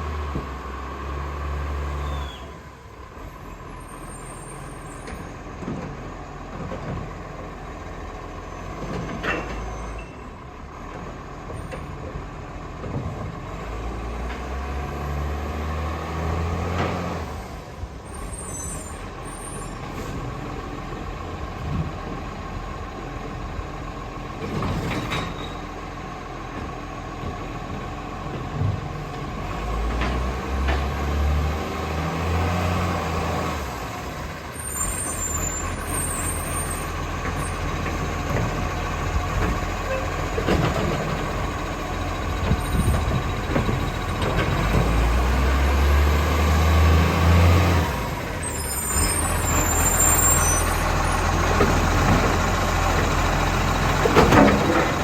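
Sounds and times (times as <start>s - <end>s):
garbage truck engine revving: 27.9s - 55.0s.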